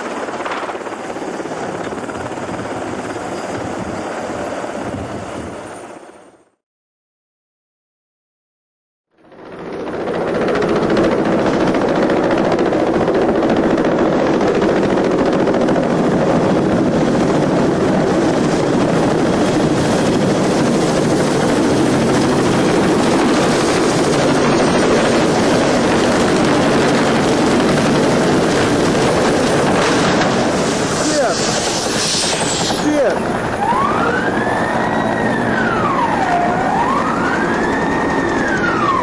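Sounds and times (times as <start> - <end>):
helicopter rotor and engine: 0.0 - 6.6, 9.2 - 39.0.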